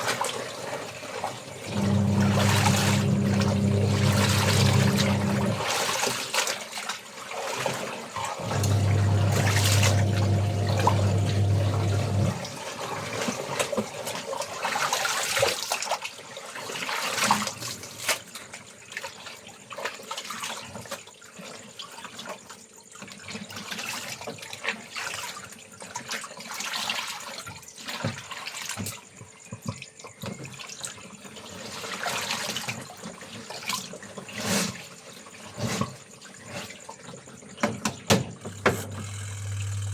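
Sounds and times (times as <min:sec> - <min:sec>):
water splashing and trickling: 0:00.0 - 0:37.6
steady low hum: 0:01.7 - 0:05.6, 0:08.5 - 0:12.5.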